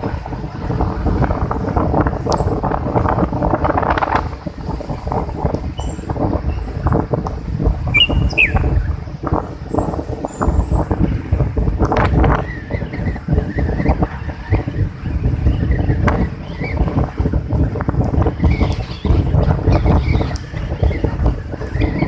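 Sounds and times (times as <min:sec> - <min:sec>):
breaking sea waves: 0:00.0 - 0:12.8
wind buffeting microphone: 0:00.0 - 0:22.0.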